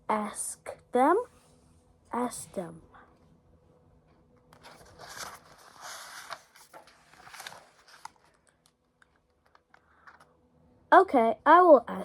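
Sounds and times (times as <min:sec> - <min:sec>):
paper rustling: 0:04.6 - 0:08.6
page turning: 0:04.6 - 0:10.3.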